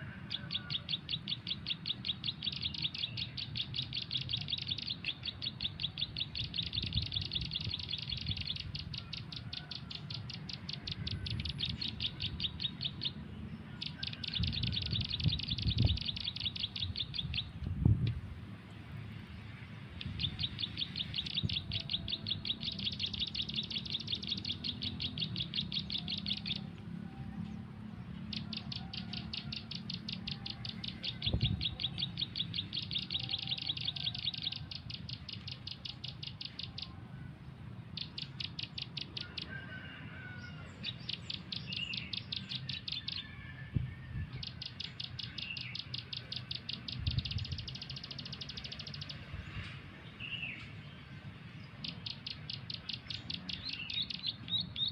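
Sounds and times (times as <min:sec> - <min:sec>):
bird chirping rapidly: 0:00.0 - 0:18.2, 0:19.6 - 0:26.9, 0:28.0 - 0:37.0, 0:37.7 - 0:39.6, 0:40.4 - 0:43.4, 0:44.2 - 0:54.9.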